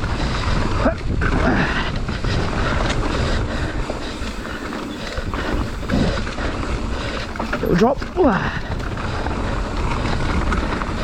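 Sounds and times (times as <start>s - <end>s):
bike rattling: 0.0s - 11.0s
wind buffeting microphone: 0.0s - 11.0s
tyres clattering over rocks: 4.0s - 9.0s.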